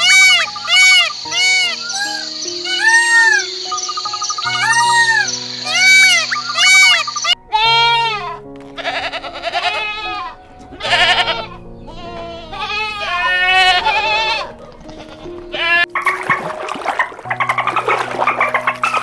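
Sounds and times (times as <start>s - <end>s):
background music: 0.0s - 19.0s
goats bleating: 7.5s - 15.9s.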